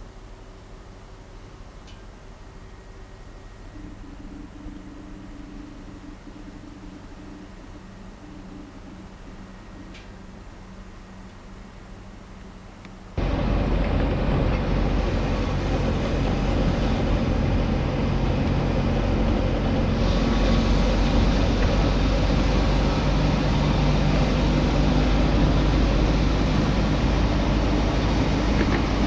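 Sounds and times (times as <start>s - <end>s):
car engine: 13.2s - 29.0s
road noise: 13.2s - 29.0s.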